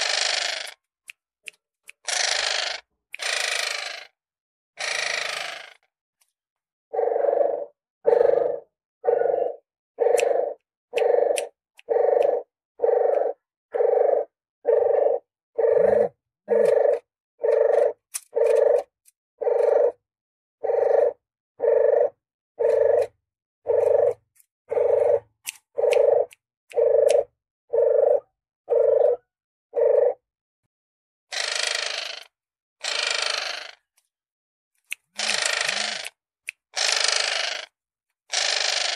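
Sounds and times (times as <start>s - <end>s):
recorded dove calls: 6.9s - 20.0s, 20.6s - 30.2s.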